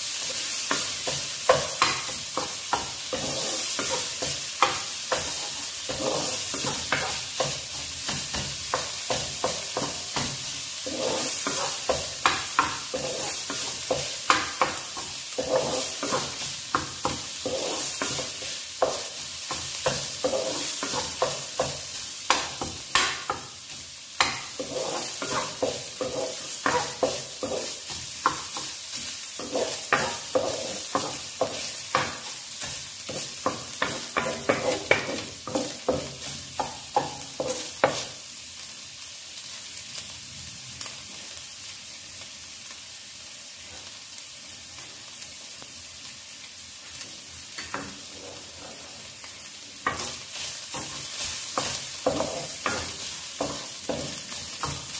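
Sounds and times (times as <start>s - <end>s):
meat sizzling in hot oil: 0.0s - 54.9s
wooden spatula scraping pan: 1.8s - 7.6s, 8.7s - 21.8s, 24.2s - 28.7s, 29.4s - 32.3s, 47.8s - 54.9s.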